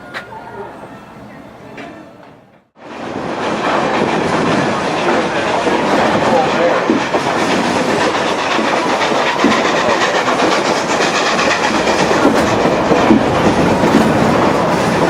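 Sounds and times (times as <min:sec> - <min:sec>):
train running noise: 0:00.0 - 0:15.0
wheels clicking over rail joints: 0:03.0 - 0:15.0.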